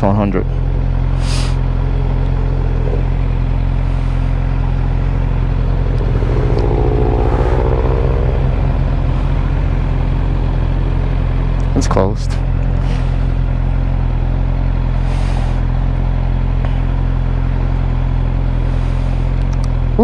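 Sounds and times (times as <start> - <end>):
vehicle passing by: 3.8 - 10.7.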